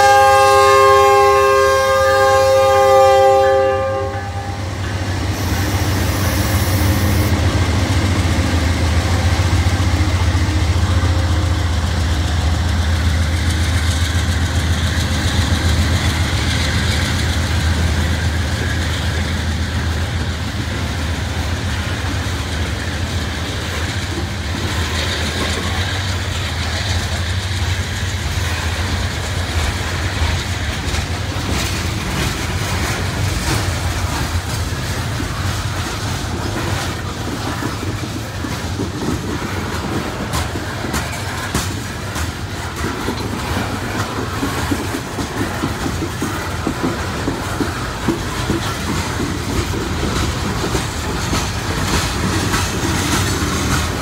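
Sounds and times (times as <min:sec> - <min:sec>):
locomotive horn: 0:00.0 - 0:07.3
diesel locomotives rumbling: 0:00.0 - 0:54.0
wheel and rail noise: 0:00.0 - 0:54.0.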